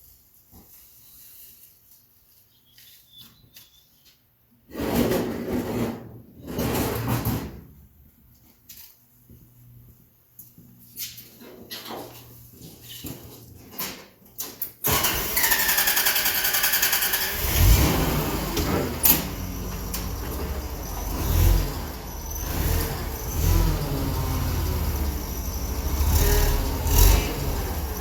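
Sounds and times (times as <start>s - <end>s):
engine starter whine: 14.8s - 28.0s
engine rumbling: 16.2s - 28.0s.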